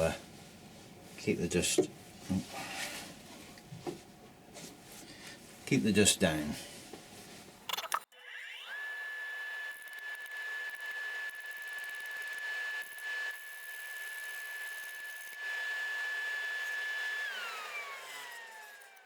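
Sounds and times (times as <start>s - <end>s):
electric motor whining: 8.2s - 19.0s
lathe tool cutting wood: 8.2s - 19.0s.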